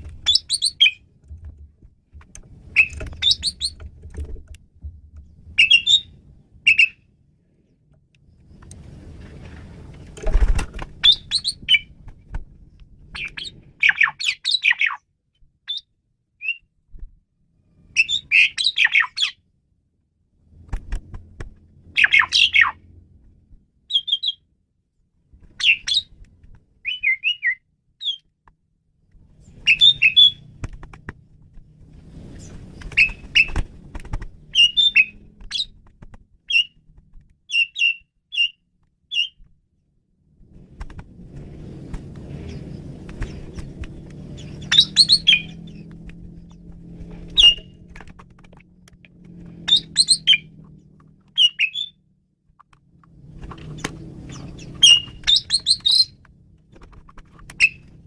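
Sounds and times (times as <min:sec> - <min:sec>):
starling chattering and whistling: 0:00.3 - 0:01.0, 0:02.8 - 0:03.8, 0:05.6 - 0:07.0, 0:11.0 - 0:11.9, 0:22.0 - 0:22.8, 0:29.6 - 0:30.4, 0:34.5 - 0:35.7, 0:44.4 - 0:45.8, 0:47.4 - 0:47.7, 0:49.7 - 0:50.6, 0:51.4 - 0:52.0, 0:54.3 - 0:56.2, 0:57.6 - 0:57.9.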